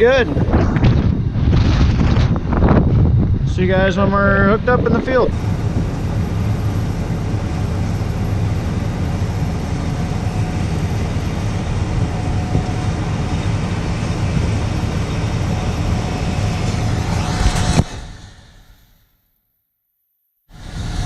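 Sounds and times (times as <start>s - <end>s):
engine rumbling: 0.0s - 19.0s
rising swish: 15.6s - 19.1s.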